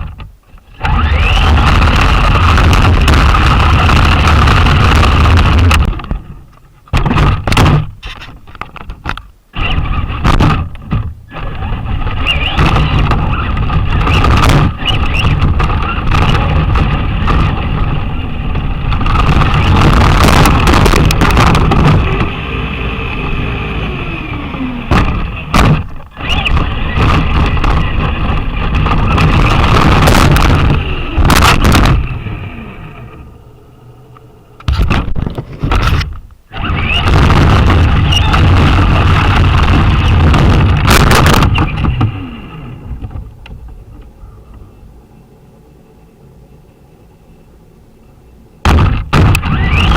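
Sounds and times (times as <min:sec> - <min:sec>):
electric motor whine: 0:00.0 - 0:06.4, 0:09.5 - 0:46.2, 0:48.9 - 0:49.9
wheels rumbling on rough ground: 0:00.0 - 0:49.9
knocks from bumps: 0:01.6 - 0:09.2, 0:10.1 - 0:11.2, 0:12.4 - 0:17.9, 0:24.9 - 0:32.2, 0:36.9 - 0:44.1, 0:48.6 - 0:49.9.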